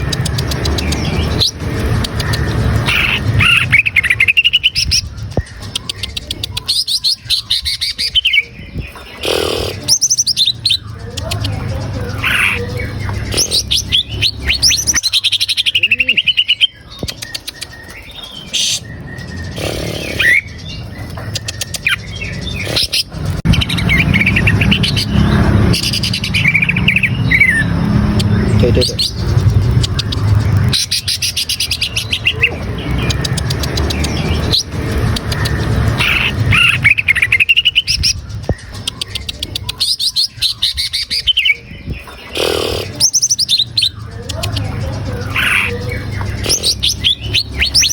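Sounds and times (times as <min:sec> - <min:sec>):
bird singing whistles and trills: 0:00.0 - 0:30.1.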